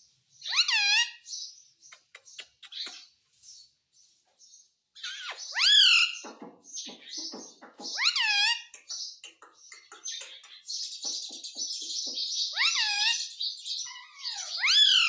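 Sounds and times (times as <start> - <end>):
parrot calling: 0.4 - 1.3, 5.0 - 6.2, 8.0 - 8.7, 12.5 - 15.0.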